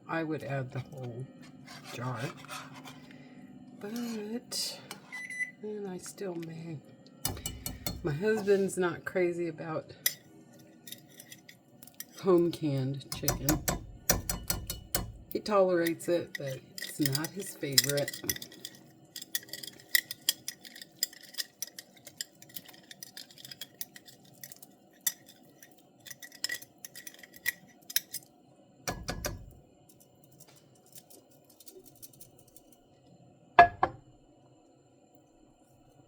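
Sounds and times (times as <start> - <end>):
metal utensil clinking on glass: 7.2 - 8.5, 13.1 - 28.2.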